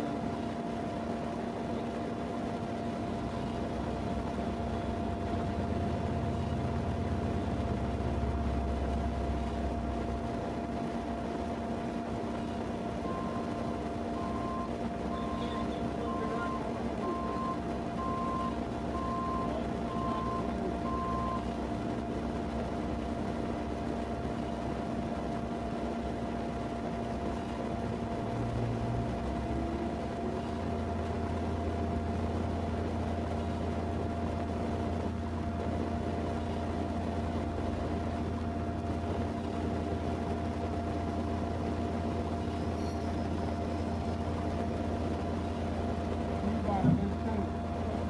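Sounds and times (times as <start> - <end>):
vehicle idling hum: 0.0 - 48.0
short even beeps: 13.0 - 13.6, 14.2 - 21.5.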